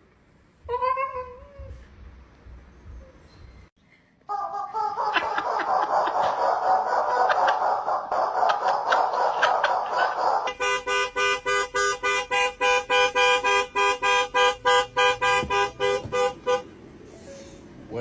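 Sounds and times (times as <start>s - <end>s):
car horn short toots: 10.5s - 16.7s.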